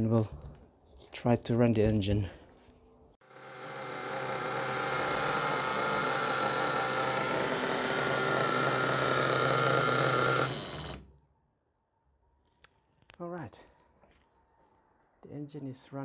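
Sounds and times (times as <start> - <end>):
model nitro engine idling: 3.3 - 10.6.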